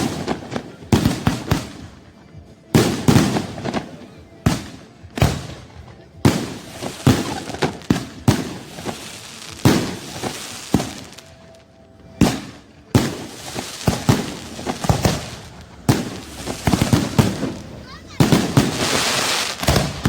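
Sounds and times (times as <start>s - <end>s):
sharp bangs and cracks: 12.2s - 20.0s.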